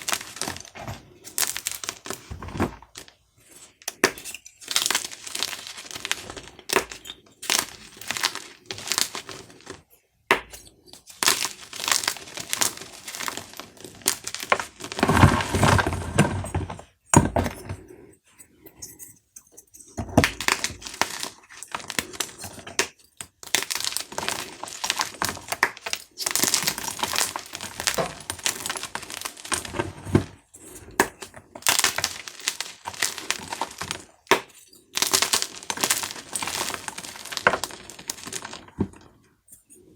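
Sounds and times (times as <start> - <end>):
chalk cubes crunching: 4.6 - 9.8, 11.0 - 15.9, 20.4 - 29.9, 30.7 - 38.8.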